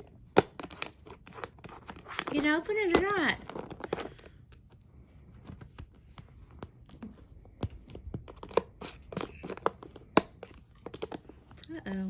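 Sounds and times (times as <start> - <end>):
cat scratching at bag: 0.0 - 11.5.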